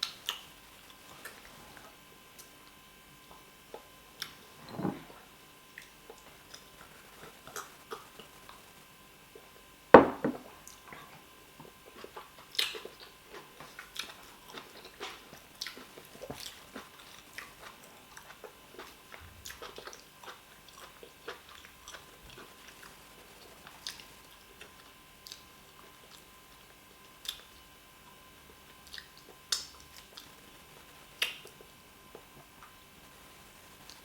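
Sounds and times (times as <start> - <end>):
loud sharp knock: 10.0 - 10.4
person chewing with mouth smacks: 10.6 - 26.3, 27.1 - 27.6, 28.8 - 30.4, 31.2 - 32.8.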